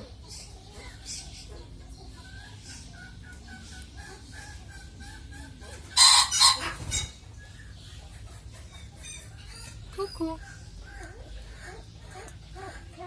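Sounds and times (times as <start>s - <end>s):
chickens clucking: 0.0s - 13.0s
rooster crowing: 6.0s - 6.7s.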